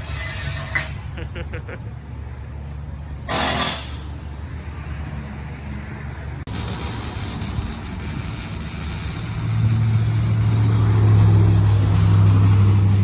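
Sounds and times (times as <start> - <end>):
workshop noise: 0.0 - 4.8, 5.9 - 13.0
vehicle engine running: 6.5 - 13.0.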